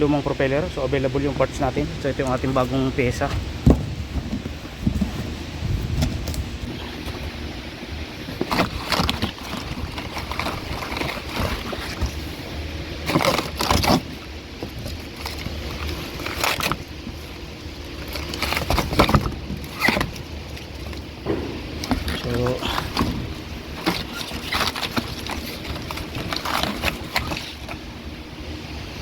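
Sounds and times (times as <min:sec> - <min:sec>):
steady low hum: 0:00.0 - 0:29.0
parts knocking and clattering: 0:03.1 - 0:07.4, 0:13.0 - 0:27.8.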